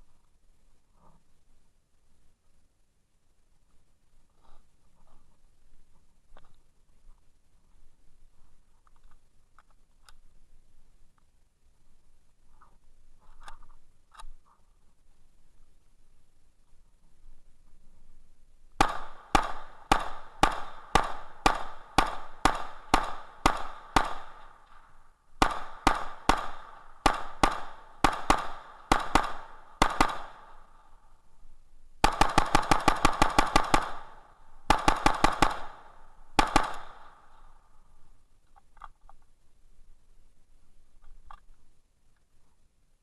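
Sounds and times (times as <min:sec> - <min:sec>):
gunshots: 0:18.8 - 0:30.9, 0:32.0 - 0:37.6.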